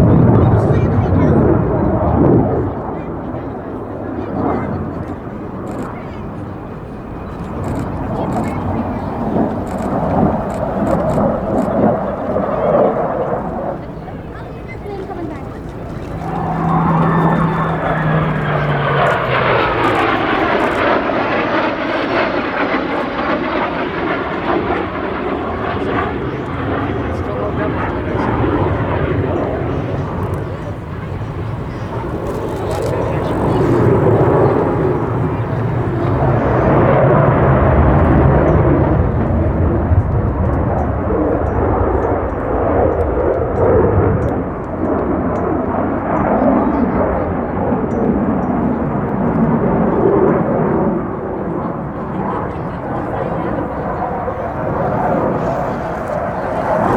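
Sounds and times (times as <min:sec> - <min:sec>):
jet flying past roaring: 0:00.0 - 0:56.9.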